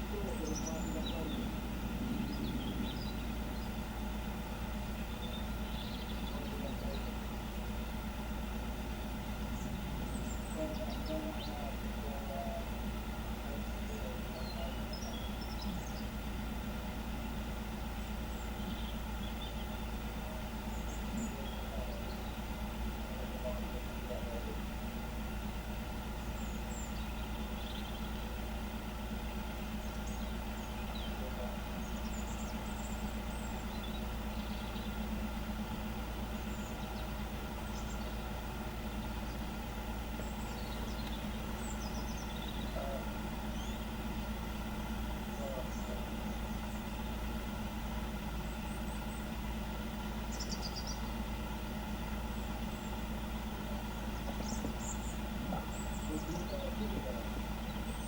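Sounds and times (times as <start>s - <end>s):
bird chirps: 0.0s - 7.3s, 9.3s - 12.8s, 13.4s - 16.2s, 17.8s - 24.6s, 26.2s - 28.5s, 29.7s - 35.3s, 36.3s - 47.4s, 50.2s - 51.3s, 52.3s - 58.0s
engine idling: 0.0s - 58.0s.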